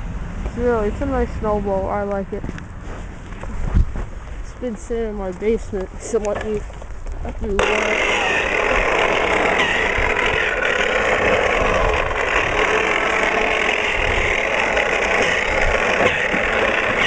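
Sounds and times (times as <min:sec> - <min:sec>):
electric snow blower running: 0:07.5 - 0:17.0.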